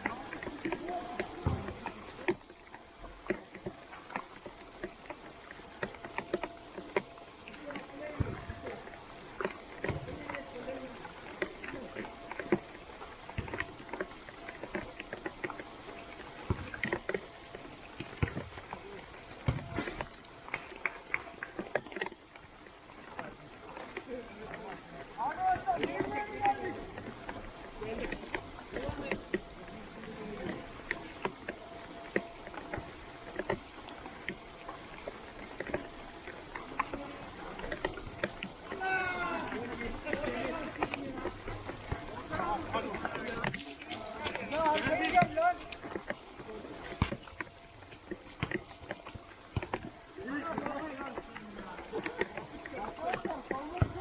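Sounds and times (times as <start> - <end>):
steady rain: 0.0 - 54.0
short splashes and knocks: 19.3 - 20.9, 46.9 - 49.9
heavy thuds: 19.4 - 20.2
rain hissing: 40.5 - 50.3.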